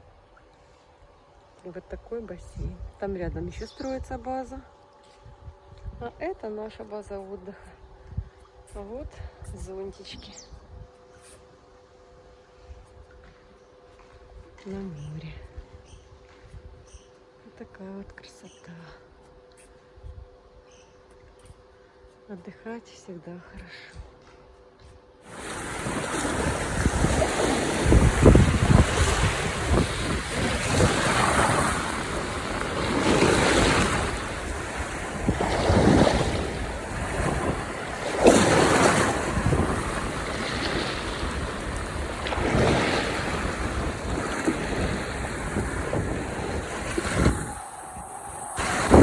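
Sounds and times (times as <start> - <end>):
sea waves breaking: 25.2 - 49.0
wind buffeting microphone: 25.3 - 49.0.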